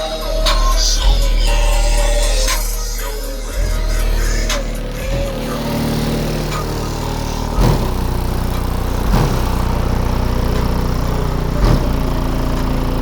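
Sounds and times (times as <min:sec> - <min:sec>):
rap music with heavy bass: 0:00.0 - 0:13.0
drum hits: 0:03.6 - 0:11.0.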